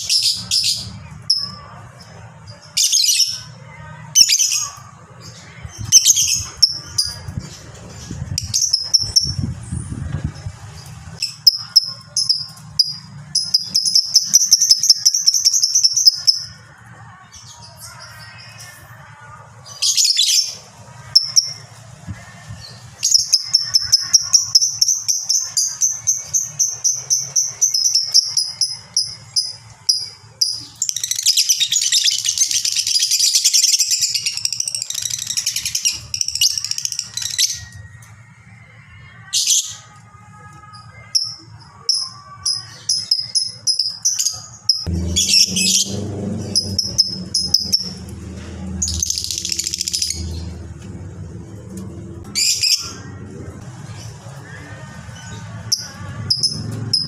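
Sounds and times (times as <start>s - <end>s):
lovebird chattering trill: 8.4s - 9.4s
low hum: 44.7s - 57.0s.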